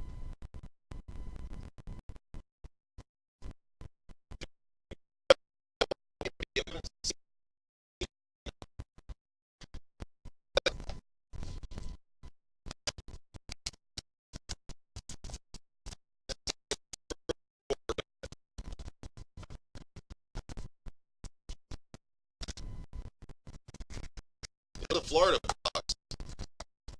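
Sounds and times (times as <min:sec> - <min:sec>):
choppy broken-up audio: 0:05.3 - 0:07.2, 0:10.6 - 0:11.9, 0:16.3 - 0:20.7, 0:24.8 - 0:26.9.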